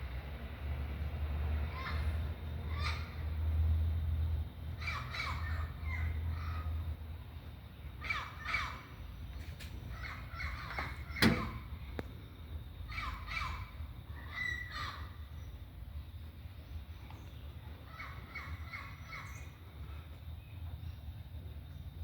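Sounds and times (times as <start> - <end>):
bird calling: 8.0 - 9.2, 9.8 - 11.9, 12.9 - 15.6, 17.0 - 20.1.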